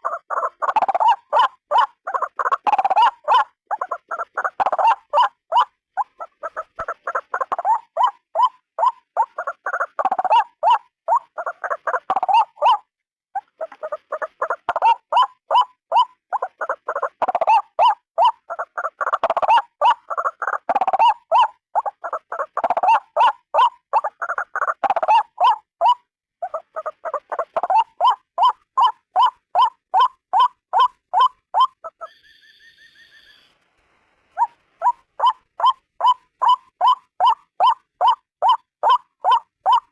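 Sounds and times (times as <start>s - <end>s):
waterhen calling repeated notes: 0.0s - 33.6s, 34.3s - 39.9s
steady high tone: 32.1s - 33.6s.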